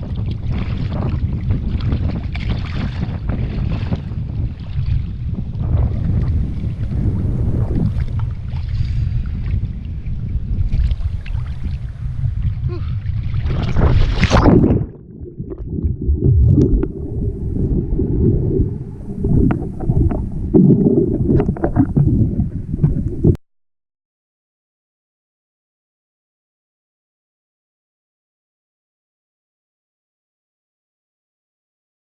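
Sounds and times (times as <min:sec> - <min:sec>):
muffled underwater rumble: 0:00.0 - 0:23.4
wind buffeting microphone: 0:00.0 - 0:23.4
sea water sloshing: 0:00.1 - 0:07.0, 0:10.6 - 0:23.4
water splash: 0:13.2 - 0:23.4.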